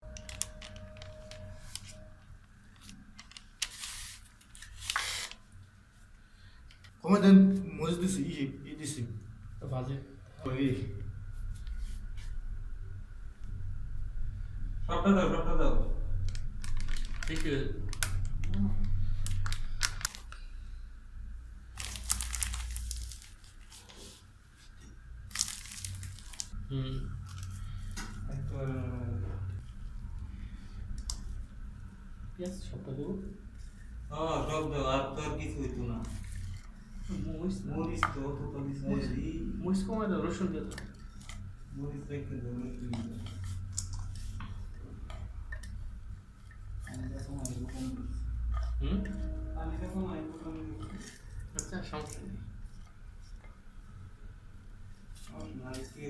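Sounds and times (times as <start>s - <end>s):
low steady hum: 0.0s - 56.0s
rustling and crinkling: 16.3s - 20.5s, 21.7s - 28.3s.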